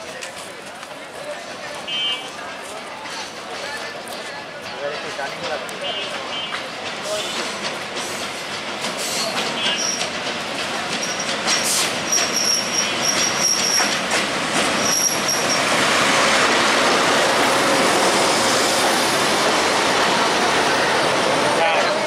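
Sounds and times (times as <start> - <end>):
locomotive and wheels rumbling: 0.0 - 22.0
high squeal of train wheels: 5.8 - 10.2, 10.9 - 15.8.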